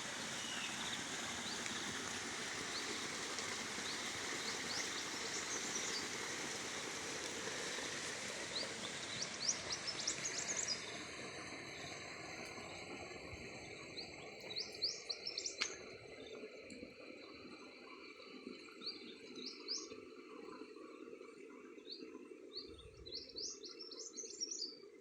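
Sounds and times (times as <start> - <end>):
small birds chirping: 0.0 - 6.2, 8.5 - 11.0, 13.7 - 16.4, 21.8 - 24.8
running water: 0.0 - 24.9.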